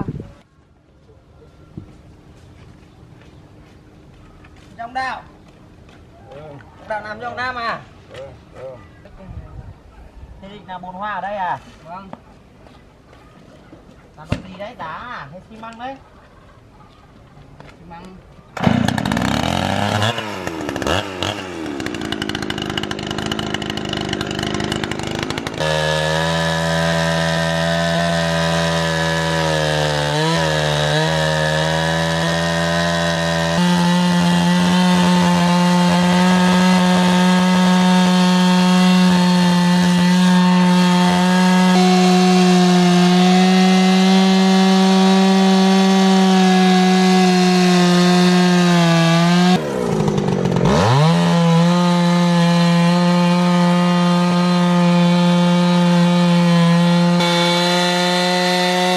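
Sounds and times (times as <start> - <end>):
chainsaw cutting log: 18.6 - 58.9.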